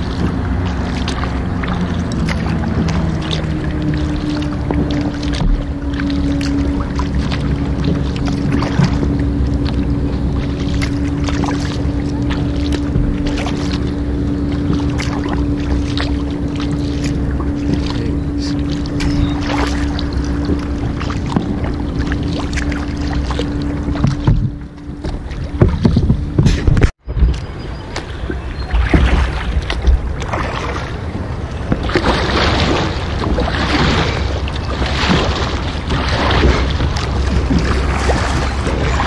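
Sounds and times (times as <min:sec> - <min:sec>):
motorboat engine droning: 0:00.0 - 0:39.0
water splashing: 0:00.0 - 0:39.0.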